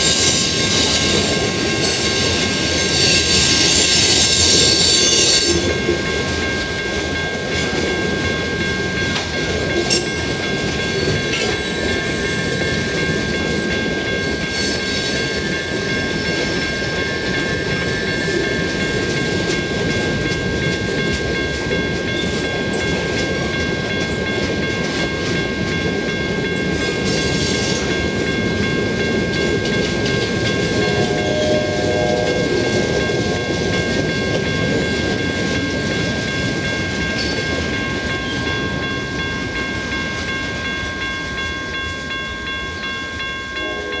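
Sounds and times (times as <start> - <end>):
freight train wheels rumbling: 0.0 - 44.0
high-pitched tones: 29.4 - 33.9.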